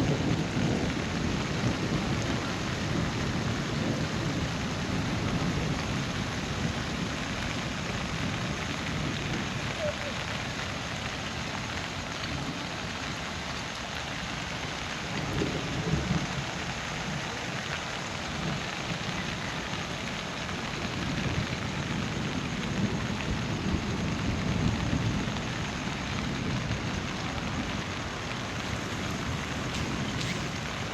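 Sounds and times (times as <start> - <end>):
heavy rain: 0.0 - 30.9.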